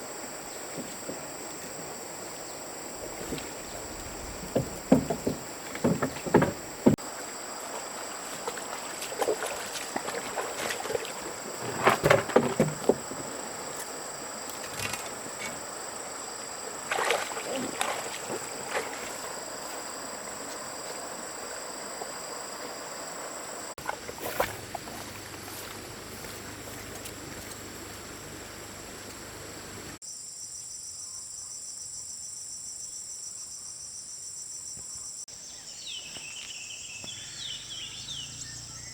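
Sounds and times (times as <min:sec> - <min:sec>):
high-pitched insect chorus: 0:00.0 - 0:38.9
knocks and rustles of handwork: 0:04.2 - 0:07.0.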